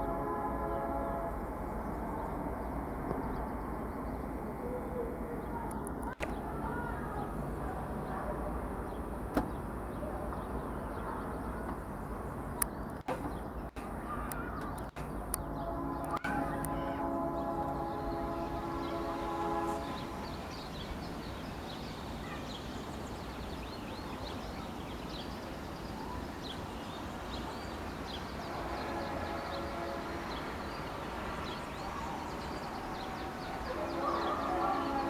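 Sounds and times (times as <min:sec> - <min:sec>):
birds chirping: 0:00.4 - 0:35.0
steady drone of held pitches: 0:15.2 - 0:20.6.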